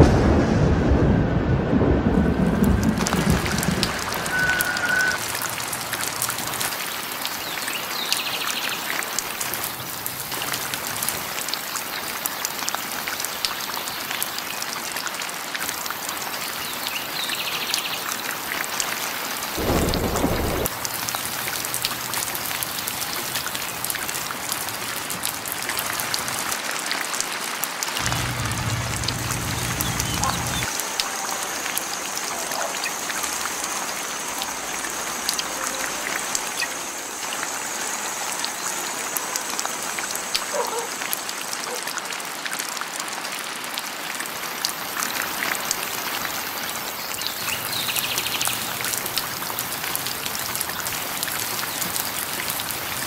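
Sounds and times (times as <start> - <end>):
low thunder rumble: 0.0 - 5.2, 19.6 - 21.1, 28.0 - 30.7
steady rain: 0.0 - 53.0.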